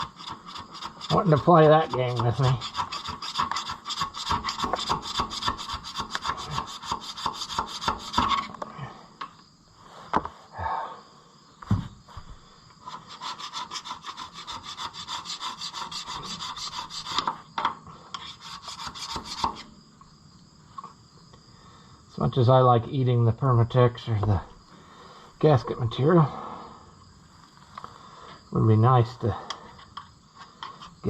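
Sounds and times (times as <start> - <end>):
hand scraper scraping metal: 0.0 - 8.6, 12.8 - 17.4, 18.2 - 19.7.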